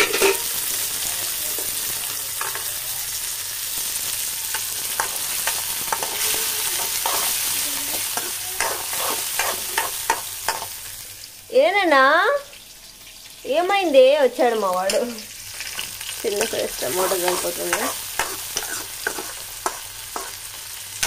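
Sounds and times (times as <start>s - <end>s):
metal spoon scraping a pan: 0.0s - 0.8s, 4.4s - 10.8s, 15.6s - 20.5s
onions and tomato sizzling in oil: 0.0s - 21.0s.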